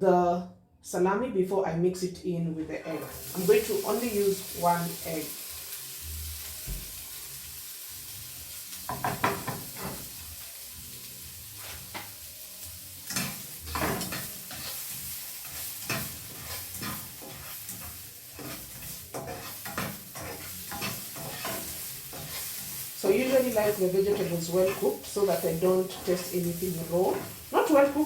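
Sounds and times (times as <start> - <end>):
vegetables sizzling in oil: 2.8 - 28.0
utensil scraping pan: 13.1 - 27.8.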